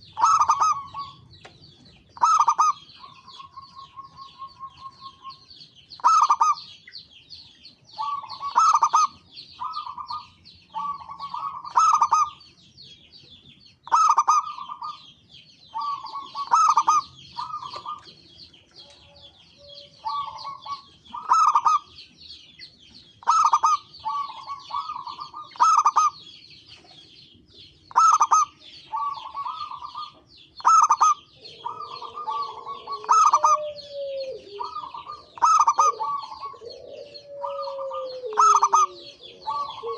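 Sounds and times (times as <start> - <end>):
doves cooing: 0.0 - 6.8, 7.9 - 12.5, 13.9 - 22.0, 23.2 - 39.9
small birds twittering: 0.0 - 39.9.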